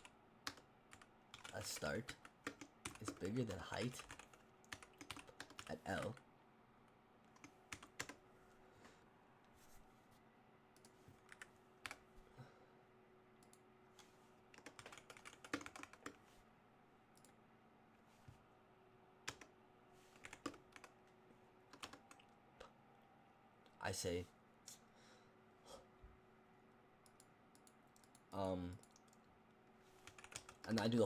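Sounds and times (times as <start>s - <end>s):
typing on computer keyboard: 0.0s - 3.3s, 3.9s - 6.2s, 7.3s - 8.2s, 14.5s - 16.2s, 20.2s - 20.9s, 21.7s - 22.3s, 30.0s - 30.9s
faint steady hum: 0.0s - 31.0s.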